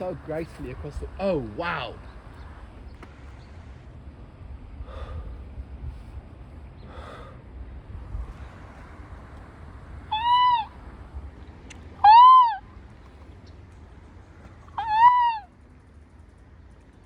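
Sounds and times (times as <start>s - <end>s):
bird calling overhead: 10.0s - 15.7s.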